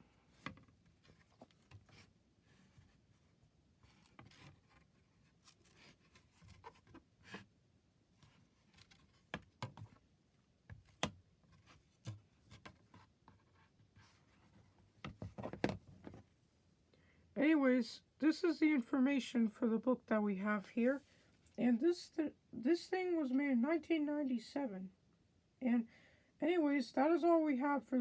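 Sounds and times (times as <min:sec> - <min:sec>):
handling of a book: 0:00.2 - 0:07.5, 0:08.2 - 0:10.0.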